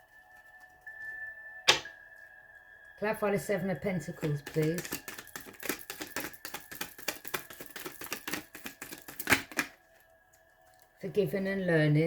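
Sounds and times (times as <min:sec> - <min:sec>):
card snapping: 0:01.7 - 0:01.9, 0:04.2 - 0:09.7
cards being shuffled: 0:04.2 - 0:09.8.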